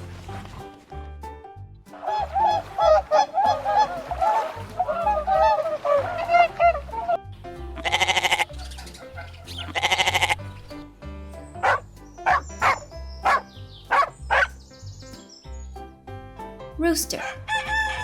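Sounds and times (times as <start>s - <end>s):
swan honking: 1.9s - 10.5s, 11.6s - 14.6s.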